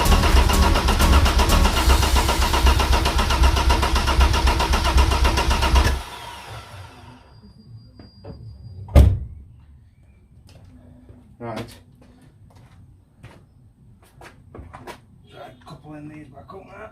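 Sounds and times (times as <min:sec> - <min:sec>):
engine cranking without firing: 0:00.0 - 0:07.0.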